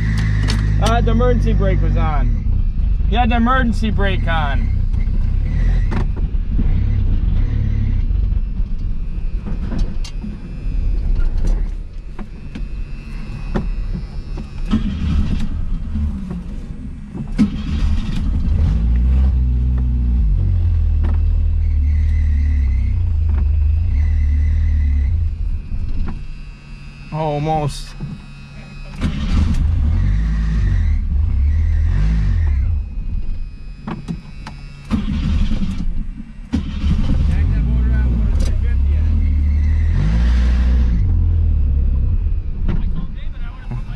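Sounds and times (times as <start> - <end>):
car engine running unevenly: 0.0 - 43.9
sharp engine knocks: 4.9 - 7.4, 20.9 - 22.3, 42.6 - 43.9.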